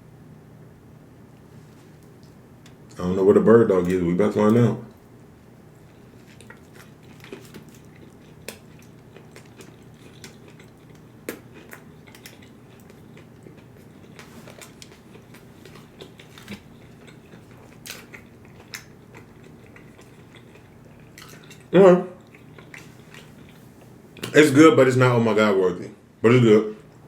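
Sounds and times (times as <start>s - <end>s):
man chewing a sandwich: 4.9s - 24.3s.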